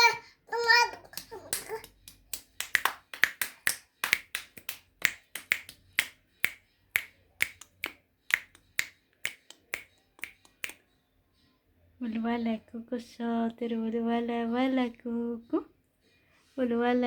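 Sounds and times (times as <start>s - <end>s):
hands clapping: 1.0s - 10.8s.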